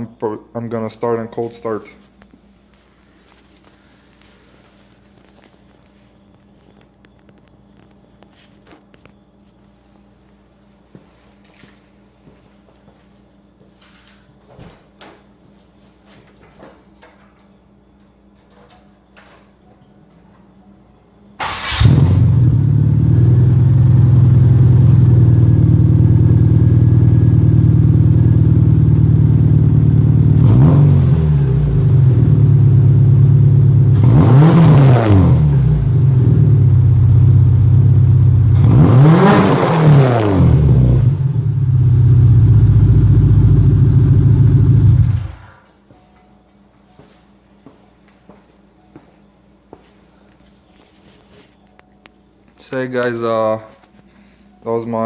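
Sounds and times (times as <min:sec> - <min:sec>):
car engine idling and revving: 0:21.7 - 0:45.4.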